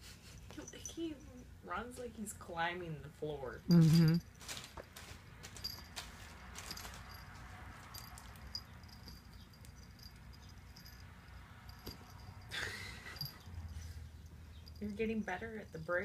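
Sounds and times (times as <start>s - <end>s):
low room hum: 0.0s - 16.0s
kittens scuffling: 3.7s - 16.0s
kitten paws tapping on floor: 3.8s - 11.0s.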